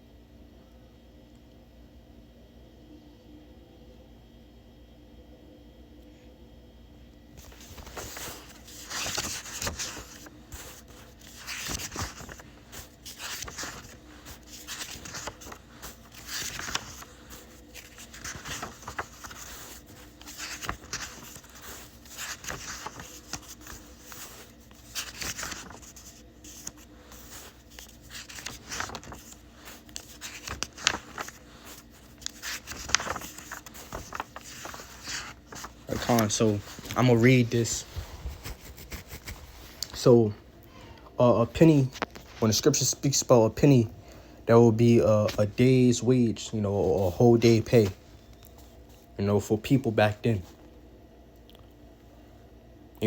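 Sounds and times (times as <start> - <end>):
rustling and crinkling: 7.4 - 40.1, 41.7 - 42.6.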